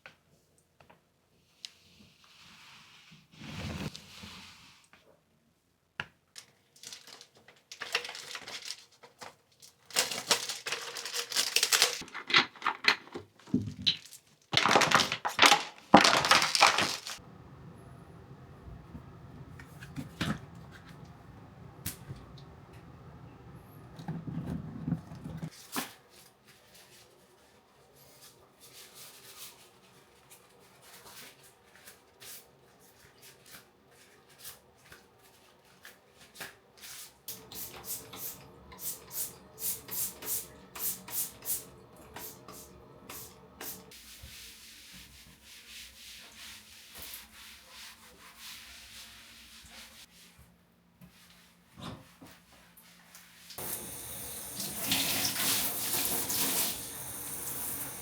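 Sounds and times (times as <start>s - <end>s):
scrubbing strokes: 43.9s - 50.4s.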